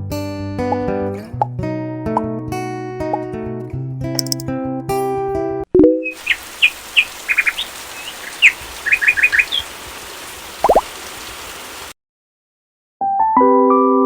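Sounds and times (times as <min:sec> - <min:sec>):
small birds chirping: 0:06.0 - 0:11.9
steady background hiss: 0:06.1 - 0:11.9
piano background music: 0:13.1 - 0:14.0.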